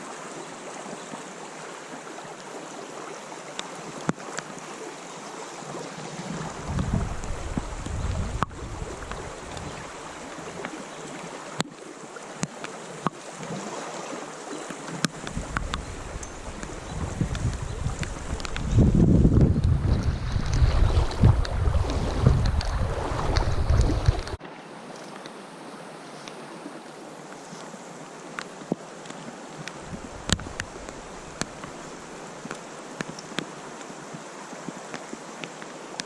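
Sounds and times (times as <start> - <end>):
creek water rushing: 0.0 - 36.0
wind buffeting the microphone: 6.2 - 10.7, 15.1 - 24.4, 29.8 - 32.1.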